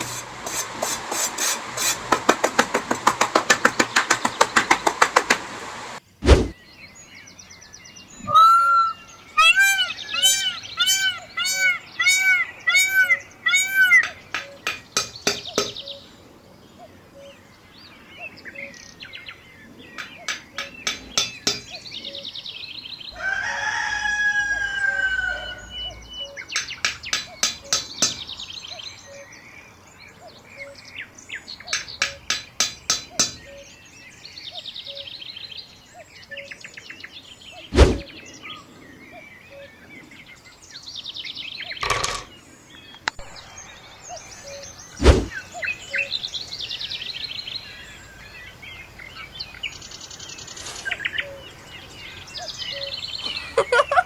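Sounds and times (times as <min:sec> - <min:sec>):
long falling bird call: 0:00.0 - 0:06.0, 0:08.1 - 0:16.2
rapid trains of clicks: 0:00.0 - 0:06.0, 0:20.0 - 0:21.7, 0:26.6 - 0:28.3, 0:31.7 - 0:33.5
sharp knocks: 0:00.0 - 0:06.6, 0:14.0 - 0:15.8, 0:20.0 - 0:21.7, 0:26.6 - 0:28.3, 0:31.7 - 0:33.5, 0:41.8 - 0:42.3
short bird chirps: 0:08.1 - 0:14.6.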